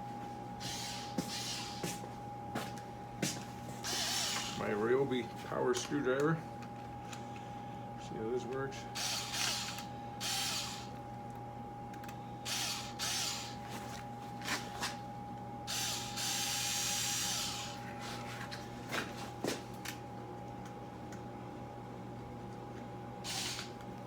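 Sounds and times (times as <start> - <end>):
power screwdriver running: 0.6 - 1.9, 3.8 - 4.7, 9.0 - 11.0, 12.5 - 13.7, 15.7 - 17.8, 23.2 - 23.8.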